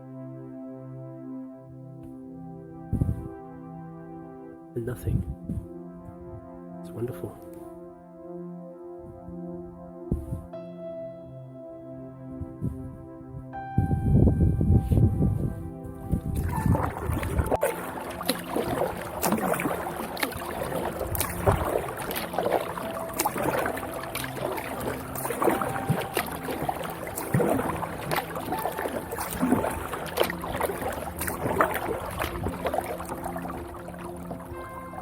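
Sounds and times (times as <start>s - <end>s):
kayak paddle splashing in water: 16.3s - 35.0s
drips against kayak hull: 16.4s - 35.0s.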